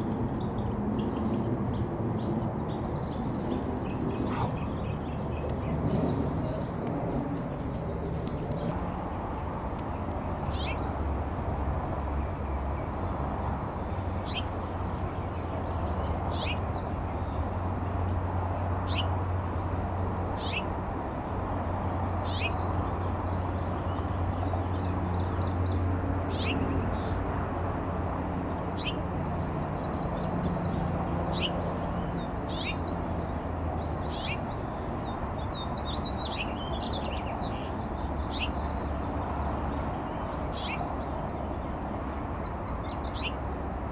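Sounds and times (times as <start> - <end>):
birds chirping: 0.1 - 43.9.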